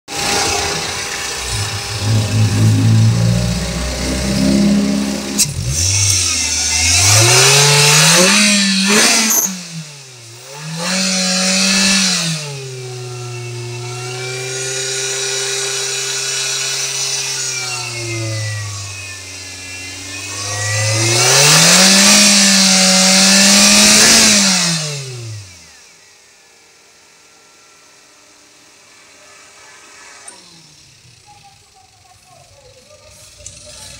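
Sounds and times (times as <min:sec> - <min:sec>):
car engine revving: 0:00.1 - 0:26.1.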